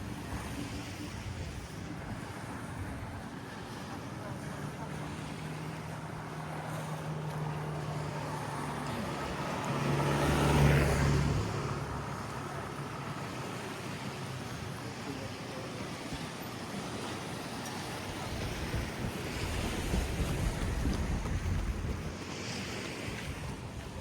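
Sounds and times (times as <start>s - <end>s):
road noise rush: 0.0s - 24.0s
vehicle engine passing: 4.8s - 13.7s.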